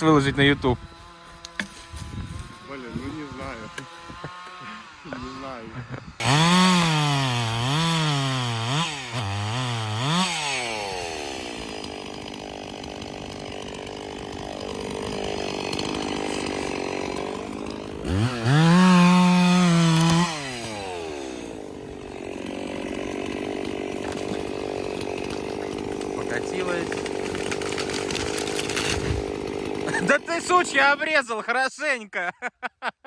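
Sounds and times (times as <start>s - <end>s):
chainsaw revving: 0.0s - 31.2s.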